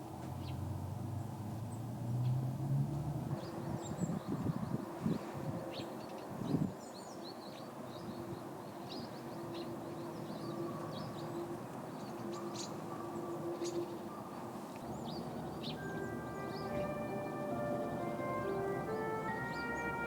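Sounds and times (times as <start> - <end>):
small birds chirping: 3.4 - 17.6.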